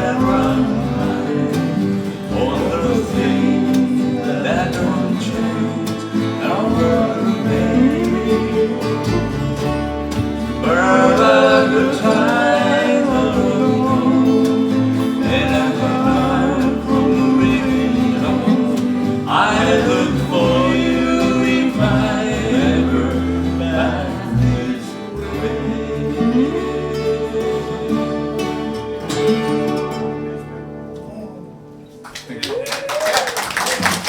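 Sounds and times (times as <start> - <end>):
person singing folk song: 0.0 - 31.5
acoustic guitar: 0.0 - 34.0.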